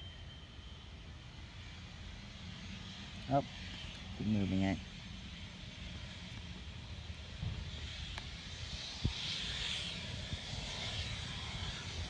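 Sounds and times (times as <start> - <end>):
jet engines hissing and whining: 0.0 - 12.0
wind rumbling on microphone: 6.0 - 12.0.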